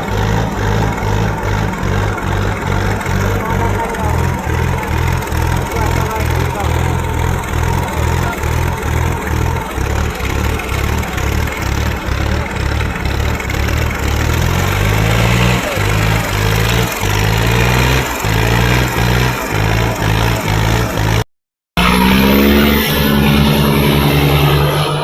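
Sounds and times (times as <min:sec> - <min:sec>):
tractor engines under load: 0:00.0 - 0:25.0.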